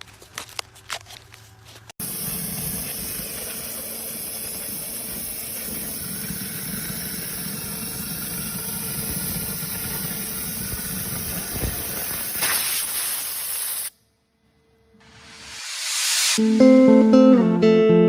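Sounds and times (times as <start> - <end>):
machine humming and hissing: 2.0 - 13.6.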